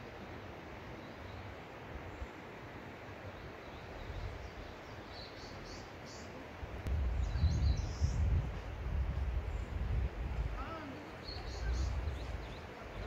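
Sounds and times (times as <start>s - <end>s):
steady outdoor hiss: 0.0s - 13.0s
small birds chirping: 3.2s - 8.7s, 9.3s - 13.0s.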